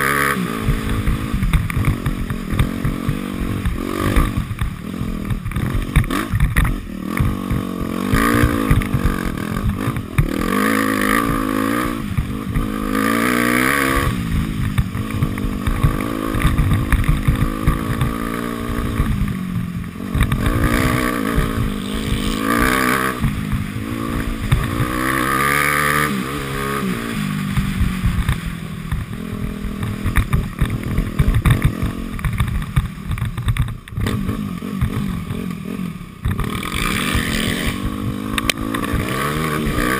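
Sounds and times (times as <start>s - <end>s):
dirt bike engine revving: 0.0s - 39.9s
knocks and rattles: 13.8s - 25.6s.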